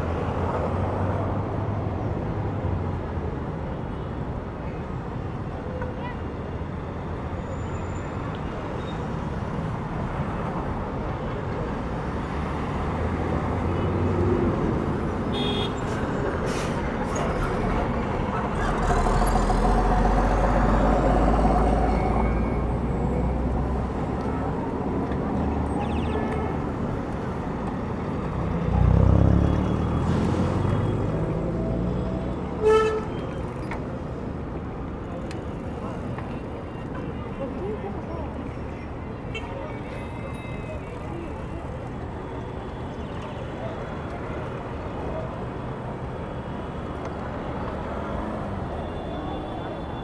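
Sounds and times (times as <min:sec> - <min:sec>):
street traffic passing: 0:00.0 - 0:50.0
car horn toot: 0:15.3 - 0:15.8, 0:32.6 - 0:33.4
large vehicle rumbling past: 0:16.2 - 0:24.2, 0:27.8 - 0:32.6.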